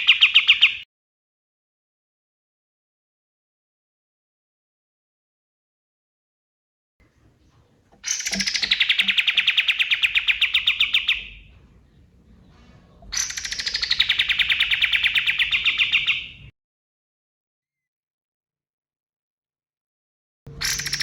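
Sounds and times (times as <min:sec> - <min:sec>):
songbird trilling: 0:07.1 - 0:16.5, 0:20.6 - 0:21.0.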